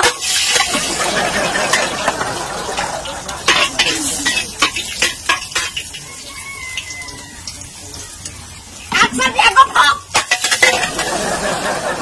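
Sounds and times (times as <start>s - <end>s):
metal spatula scraping a wok: 0.0s - 0.9s, 3.4s - 6.0s, 10.1s - 11.1s
onion and garlic sizzling in oil: 0.0s - 11.1s.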